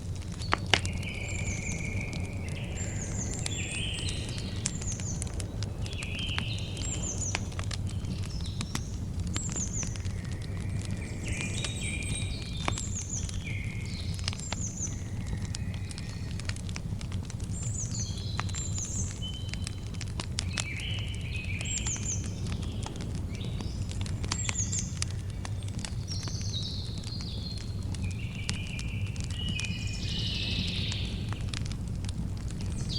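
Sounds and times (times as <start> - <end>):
campfire crackling and popping: 0.0 - 32.9
birds singing whistled phrases: 0.4 - 16.4, 26.1 - 31.4.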